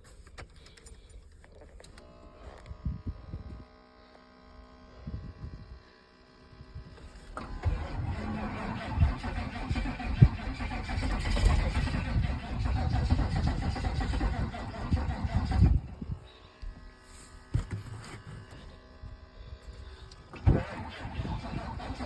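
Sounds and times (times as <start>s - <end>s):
diesel engine running unevenly: 7.0s - 18.8s, 19.6s - 22.0s.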